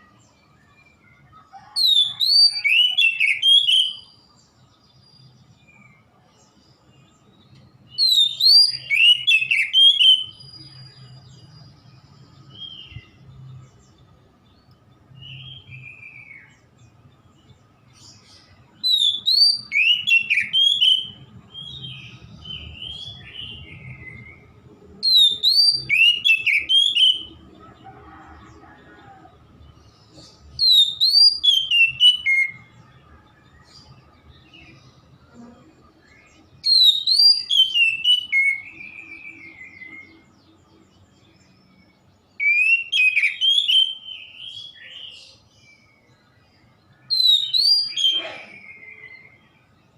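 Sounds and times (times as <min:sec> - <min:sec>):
bird singing whistled phrases: 0:01.8 - 0:04.2, 0:08.0 - 0:11.0, 0:18.8 - 0:21.9, 0:25.0 - 0:27.4, 0:30.6 - 0:32.7, 0:36.6 - 0:39.6, 0:42.4 - 0:45.2, 0:47.0 - 0:49.4.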